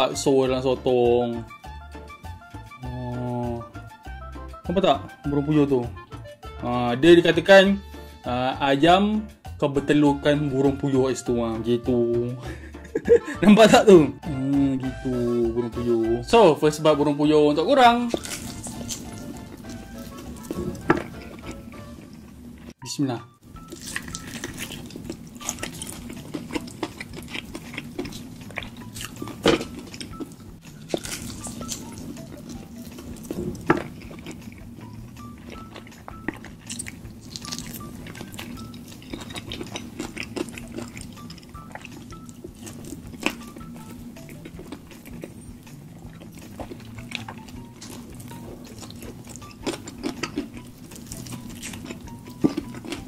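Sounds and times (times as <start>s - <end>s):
chewing: 18.1s - 22.7s, 23.6s - 53.0s.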